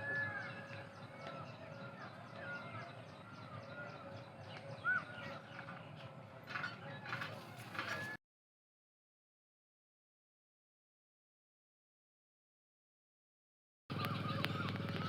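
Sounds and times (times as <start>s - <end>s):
birds chirping: 0.0s - 8.2s, 13.9s - 15.0s.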